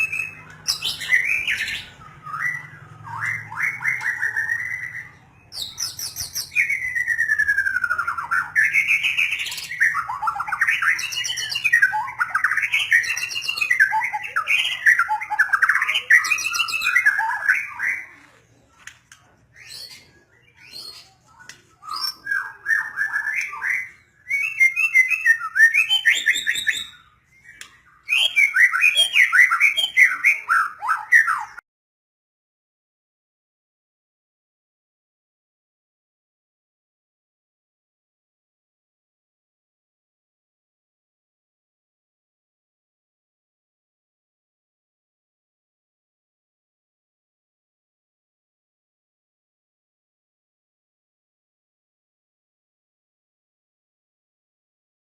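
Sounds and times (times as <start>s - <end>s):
songbird singing whistled phrases: 0.0s - 18.3s, 19.6s - 31.6s.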